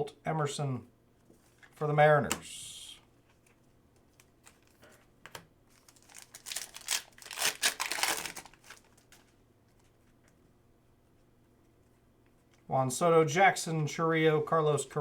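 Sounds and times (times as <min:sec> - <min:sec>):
wrapper tearing and crinkling: 0:05.7 - 0:09.3.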